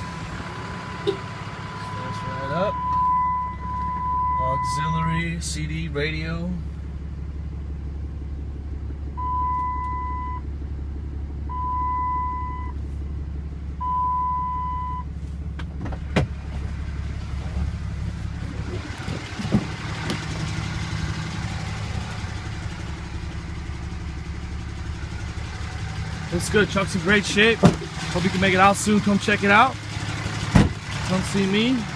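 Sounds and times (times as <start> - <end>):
long even beeps: 0.0 - 5.1, 9.2 - 10.5, 11.5 - 12.8, 13.8 - 15.1
diesel engine idling: 0.0 - 31.9.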